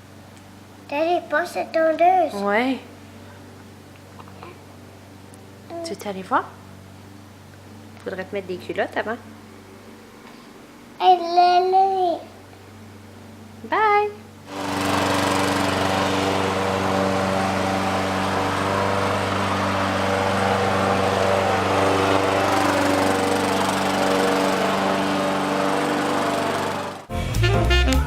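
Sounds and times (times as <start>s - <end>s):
lawn mower engine running: 14.5s - 27.1s.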